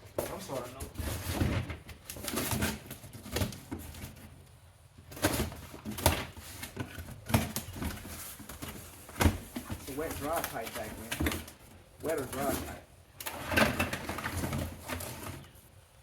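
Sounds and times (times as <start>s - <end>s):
packaging rustling: 5.1s - 15.6s.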